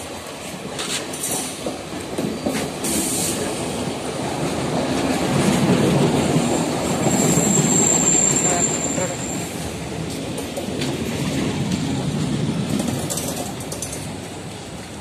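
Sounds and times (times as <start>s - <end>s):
train wheels on rails: 0.0s - 15.0s
high-pitched squeal: 7.1s - 9.6s.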